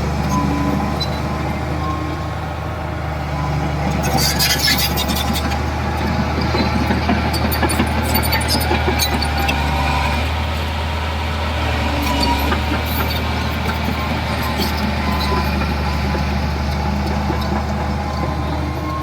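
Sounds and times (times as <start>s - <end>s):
heavy diesel engine running: 0.0s - 19.0s
metallic clanks and squeaks: 3.4s - 10.3s, 11.8s - 19.0s.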